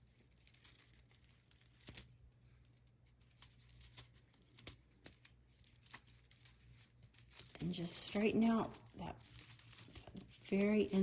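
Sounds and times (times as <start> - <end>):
sharp foil crackles: 3.2 - 11.0
foil crinkling: 5.6 - 11.0.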